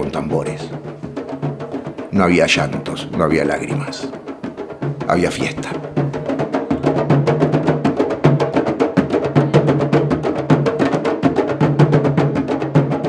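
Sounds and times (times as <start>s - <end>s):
low booming drum: 0.0s - 8.4s
fast hand drumming: 0.0s - 13.0s.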